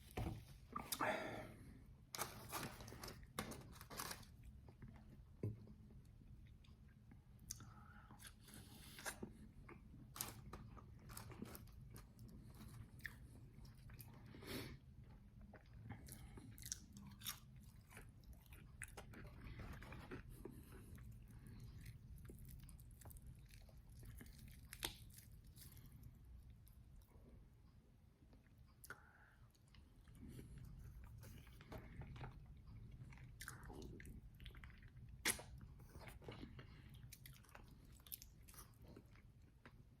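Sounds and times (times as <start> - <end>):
crunchy chewing: 15.5 - 26.0.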